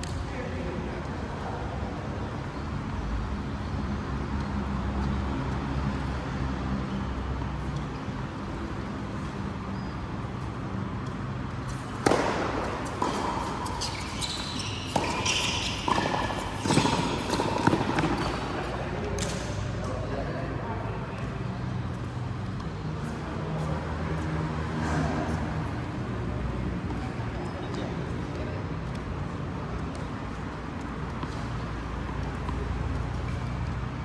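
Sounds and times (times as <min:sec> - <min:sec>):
indoor hall noise: 0:00.0 - 0:34.0
shoes squeaking on court floor: 0:01.4 - 0:20.1, 0:20.8 - 0:34.0
sharp ball hits: 0:12.0 - 0:18.5.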